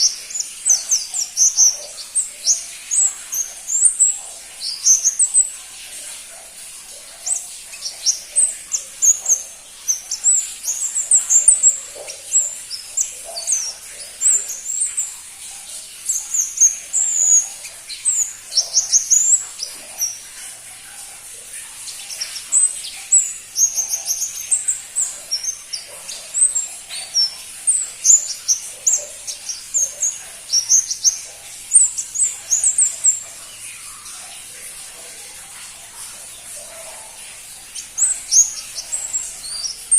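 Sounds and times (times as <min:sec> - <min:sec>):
bird chirping high thin chirps: 0:00.0 - 0:05.6, 0:07.1 - 0:20.4, 0:21.8 - 0:34.1, 0:36.6 - 0:39.9.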